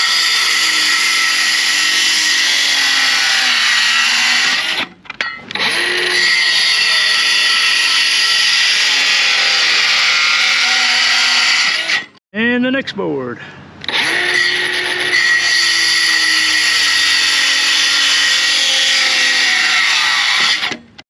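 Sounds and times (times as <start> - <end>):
circular saw cutting board: 13.8 - 20.9.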